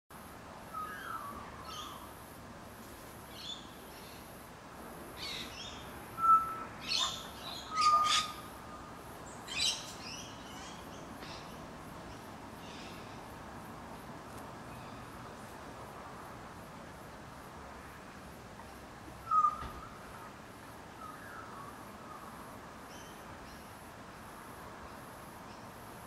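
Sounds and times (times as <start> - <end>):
birds chirping and whistling: 6.2 - 8.4.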